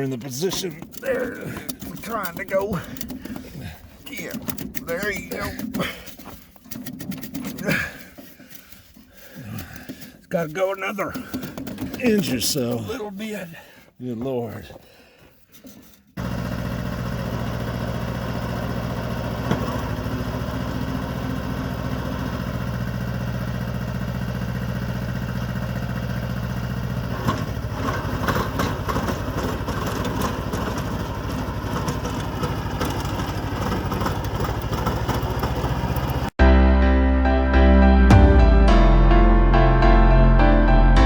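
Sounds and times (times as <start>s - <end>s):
engine rattling and clatter: 0.0s - 10.1s, 16.2s - 36.4s
tractor engine running: 0.0s - 12.9s, 15.8s - 36.4s.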